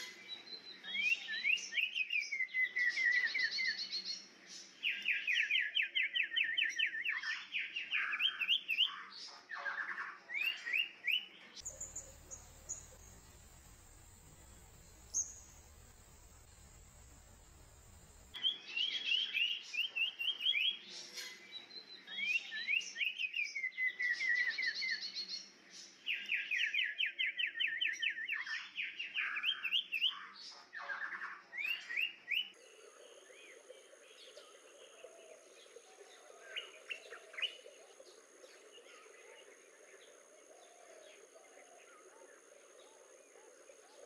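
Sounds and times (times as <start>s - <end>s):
steady high hum: 11.6s - 18.4s
bird singing rapid trills: 11.6s - 18.6s.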